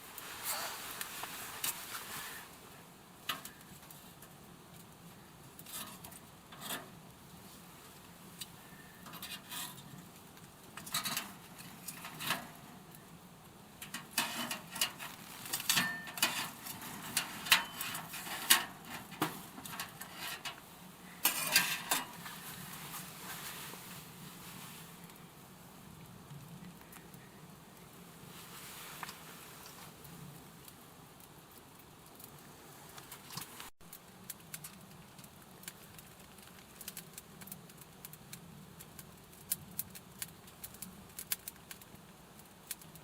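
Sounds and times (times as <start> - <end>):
gear clicking and rustling: 13.8 - 20.6.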